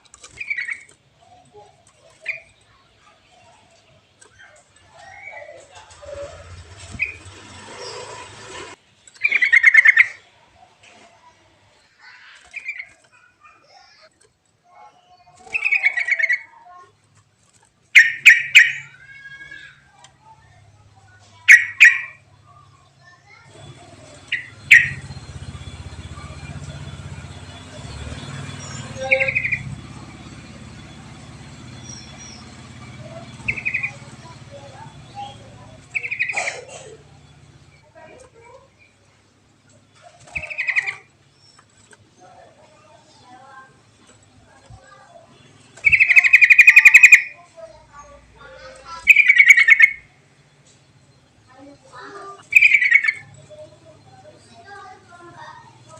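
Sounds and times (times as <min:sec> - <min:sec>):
buzzy bird trill: 0:00.0 - 0:10.6, 0:11.8 - 0:55.9.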